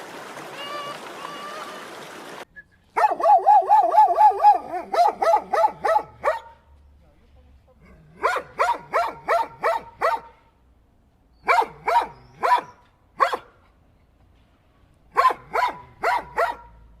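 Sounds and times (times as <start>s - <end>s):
dog barking: 3.0s - 6.7s, 8.1s - 10.4s, 11.4s - 13.6s, 15.1s - 16.8s.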